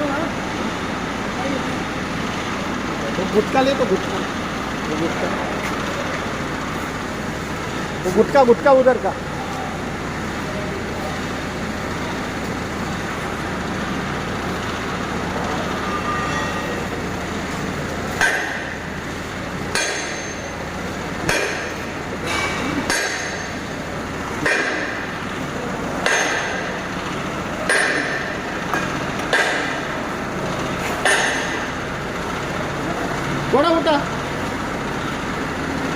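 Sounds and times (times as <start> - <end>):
machinery hum: 0.0 - 35.9
hammer clanging on metal: 18.2 - 18.8, 19.7 - 20.5, 21.3 - 23.6, 27.7 - 29.8, 31.0 - 31.6.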